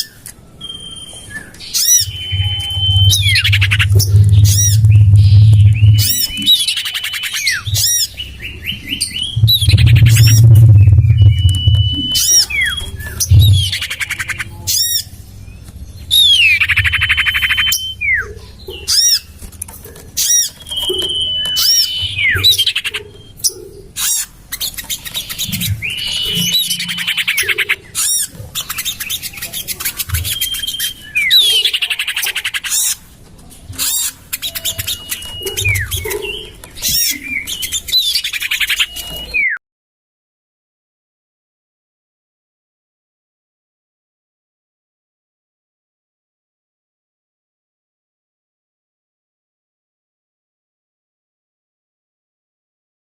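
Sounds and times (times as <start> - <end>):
thin bird whistle: 0.0 - 13.8, 16.1 - 18.3, 20.2 - 23.4, 24.6 - 27.7, 28.6 - 31.6, 34.4 - 39.6
bird chattering calls: 1.7 - 15.1, 20.0 - 33.0, 33.8 - 39.2
low rumble: 2.1 - 6.6, 8.7 - 13.8, 25.5 - 27.6.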